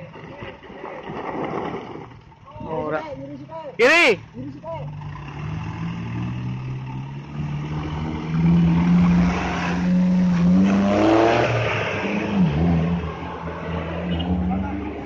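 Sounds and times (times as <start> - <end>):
truck engine revving: 4.1 - 15.0.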